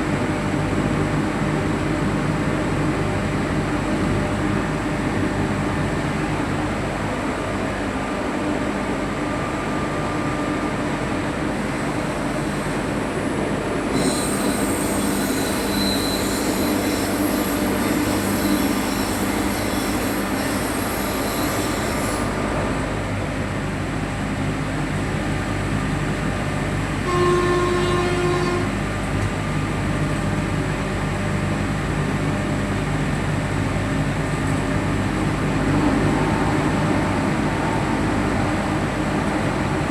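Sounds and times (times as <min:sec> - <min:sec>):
wheels squealing on rails: 0:09.5 - 0:23.0, 0:27.1 - 0:28.8
locomotive horn blast: 0:27.0 - 0:28.8.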